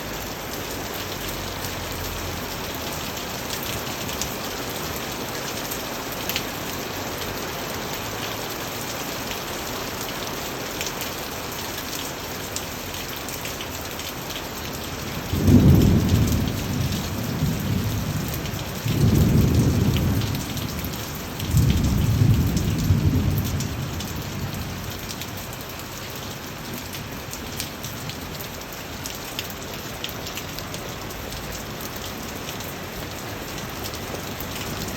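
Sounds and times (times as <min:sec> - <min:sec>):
raindrops ticking on surfaces: 0:00.0 - 0:34.9
steady rain falling: 0:00.0 - 0:34.9
thunder rumbling: 0:15.2 - 0:25.0.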